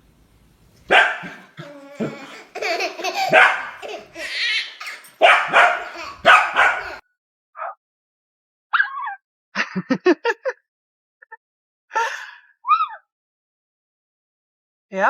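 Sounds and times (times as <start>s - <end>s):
dog barking: 0.9s - 1.5s, 3.2s - 3.9s, 5.2s - 7.0s.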